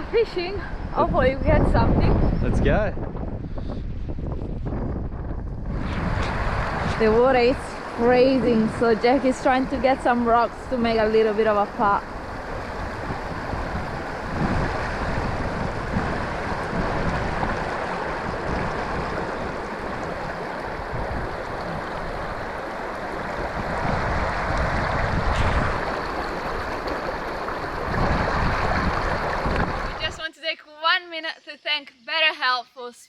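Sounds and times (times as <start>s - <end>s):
wind buffeting microphone: 0.0s - 30.3s
sea water washing at shore: 5.7s - 30.2s.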